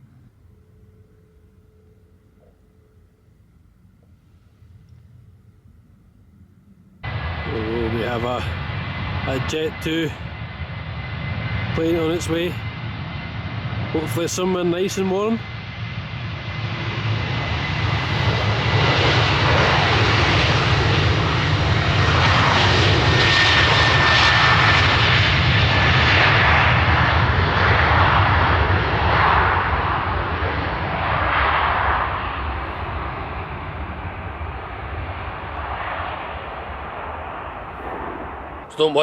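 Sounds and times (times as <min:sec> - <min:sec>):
thin high engine whine: 0:00.0 - 0:39.0
jet airliner engines roaring: 0:03.2 - 0:39.0.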